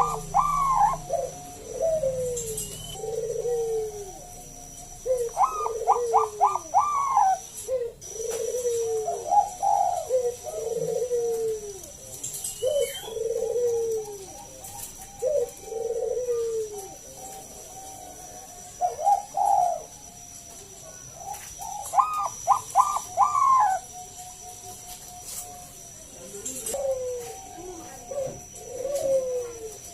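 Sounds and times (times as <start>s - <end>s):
dove cooing: 0.0s - 29.9s.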